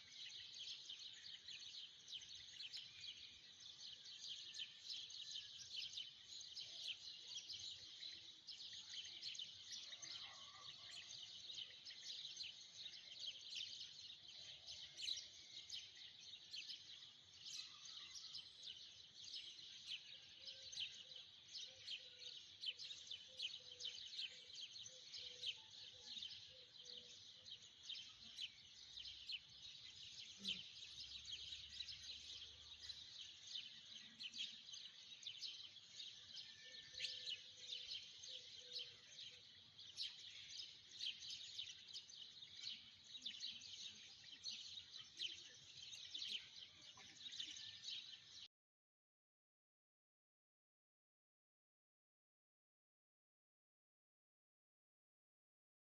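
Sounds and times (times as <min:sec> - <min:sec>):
small birds chirping: 0:00.0 - 0:48.5.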